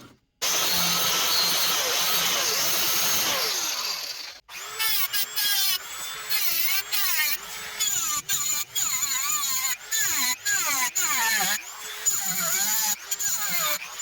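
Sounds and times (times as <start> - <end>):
power tool whirring: 0.0 - 14.0
power tool whine: 0.4 - 9.2.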